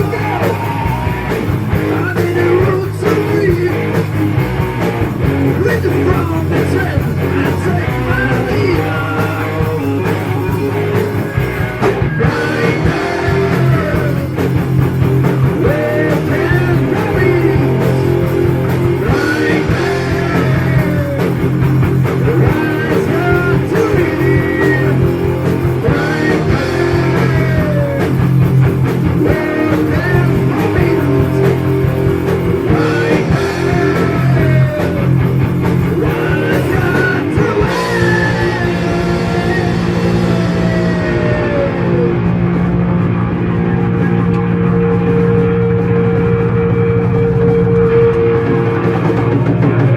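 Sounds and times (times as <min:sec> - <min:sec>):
distorted electric guitars: 0:00.0 - 0:49.9
heavy metal band playing: 0:00.0 - 0:49.9.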